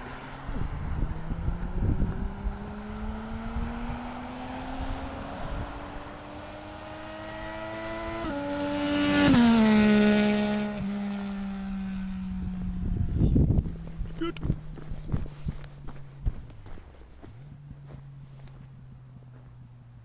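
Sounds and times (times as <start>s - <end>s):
motorcycle engine revving past: 0.0s - 15.4s.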